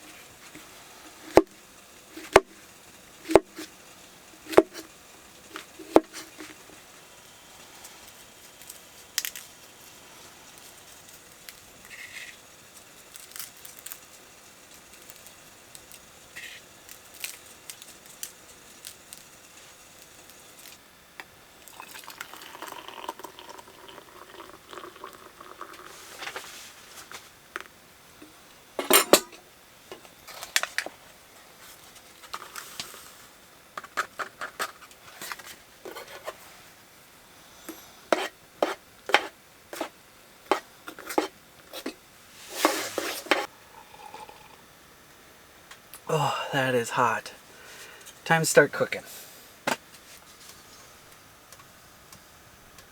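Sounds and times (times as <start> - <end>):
metal cookware clinking: 28.8 - 29.4.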